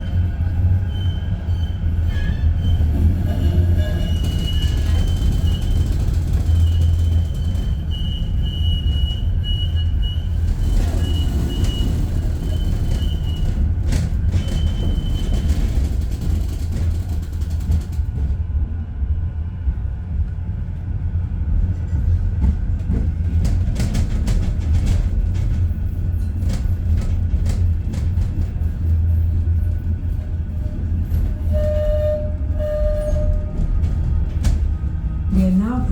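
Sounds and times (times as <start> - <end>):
tram rumbling on rails: 0.0 - 35.9
high wheel squeal: 0.2 - 13.7, 30.5 - 33.6.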